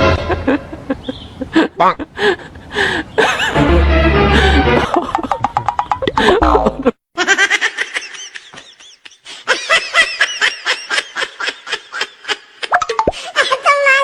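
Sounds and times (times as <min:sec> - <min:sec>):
high-pitched giggling laughter: 0:04.4 - 0:14.0.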